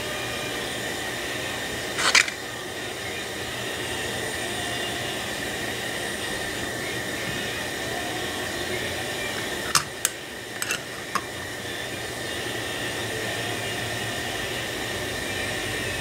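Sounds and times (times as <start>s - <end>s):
small metal parts clattering: 2.0s - 2.4s, 9.7s - 11.3s.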